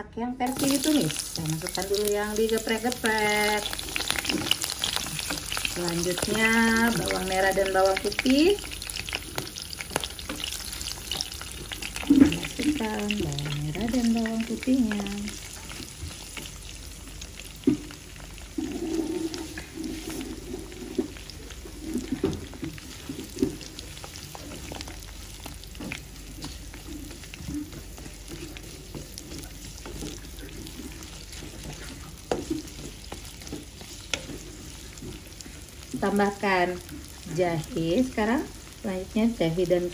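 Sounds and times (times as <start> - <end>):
aromatics sizzling in hot oil: 0.4 - 39.9
spatula scraping and tapping a pan: 19.2 - 35.6.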